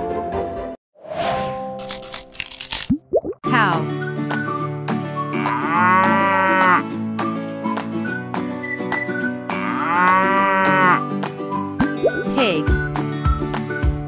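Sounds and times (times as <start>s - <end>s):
light children's music: 3.5s - 14.0s
cow mooing: 5.3s - 6.8s, 9.5s - 11.0s.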